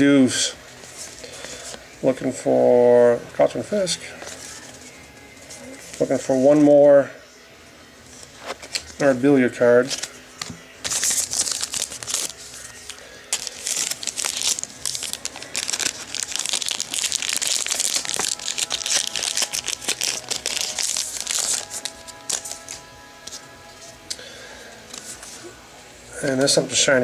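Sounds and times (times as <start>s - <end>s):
cards shuffled by hand: 9.8s - 23.4s
foil wrapper tearing and crinkling: 10.8s - 22.8s.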